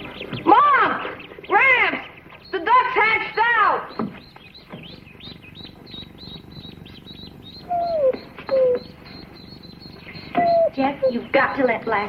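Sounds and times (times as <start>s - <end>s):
ducklings peeping: 0.0s - 12.0s
dog whining: 7.6s - 9.3s, 10.0s - 11.4s.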